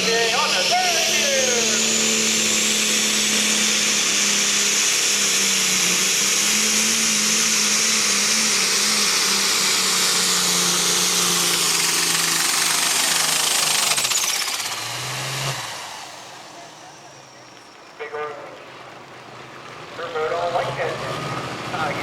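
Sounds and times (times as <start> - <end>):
announcers speaking: 0.0 - 2.3, 16.3 - 22.0
tractor engine running under load: 0.0 - 22.0.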